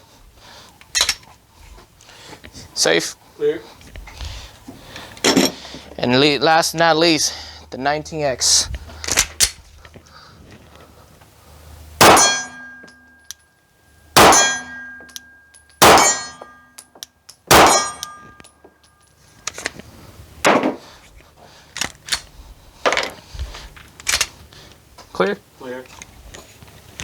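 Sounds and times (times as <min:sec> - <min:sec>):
pistol being handled clacks: 0:08.9 - 0:10.1, 0:15.0 - 0:19.8, 0:21.7 - 0:24.4
pistol shots: 0:12.0 - 0:12.8, 0:14.2 - 0:15.0, 0:15.8 - 0:16.4, 0:17.5 - 0:18.2
steel target plate ringing: 0:12.0 - 0:13.5, 0:14.1 - 0:19.0.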